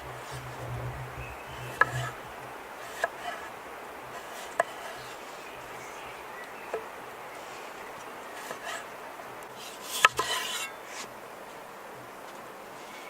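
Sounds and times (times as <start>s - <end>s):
scraping and rubbing: 0.0s - 5.4s, 7.4s - 8.9s, 9.5s - 11.1s
steady background hiss: 0.0s - 13.0s.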